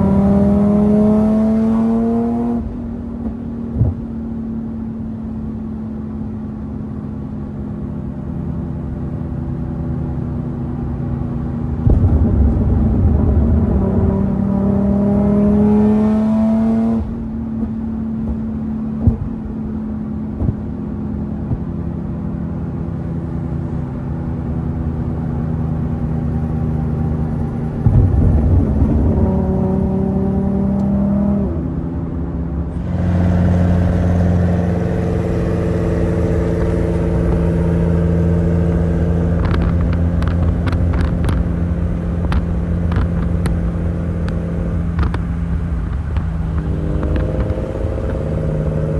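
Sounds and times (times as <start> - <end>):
deep exhaust drone: 0.0 - 3.1, 9.8 - 48.9
car engine revving: 0.0 - 4.0, 10.7 - 19.6, 21.4 - 48.9
sharp exhaust crackles: 11.8 - 18.4, 32.7 - 48.9.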